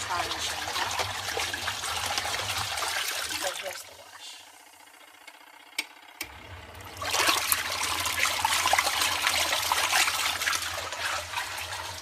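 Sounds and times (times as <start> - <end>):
water churning and splashing: 0.0 - 4.0, 6.9 - 12.0
washing machine motor hum: 0.0 - 12.0.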